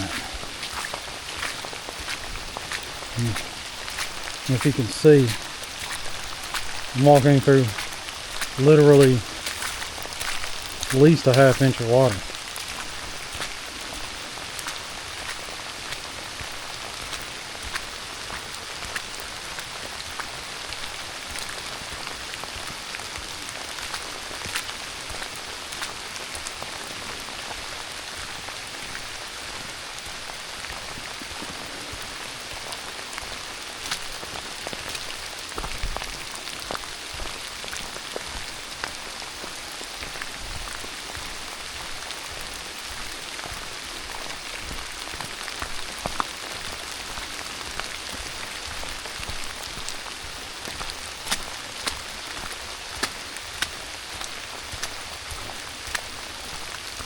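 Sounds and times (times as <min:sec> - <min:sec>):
steady rain hiss: 0:00.0 - 0:57.0
raindrop taps: 0:50.7 - 0:56.1.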